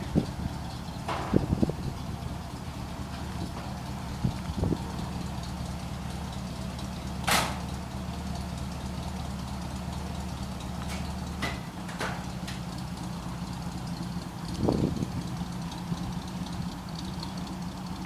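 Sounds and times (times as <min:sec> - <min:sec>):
car engine idling: 0:00.0 - 0:18.0
sharp clack: 0:07.2 - 0:07.7.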